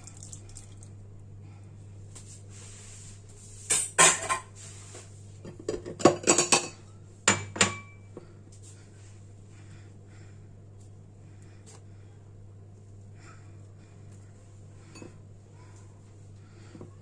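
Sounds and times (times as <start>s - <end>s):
kitchenware clattering: 3.7s - 4.6s, 5.4s - 8.0s.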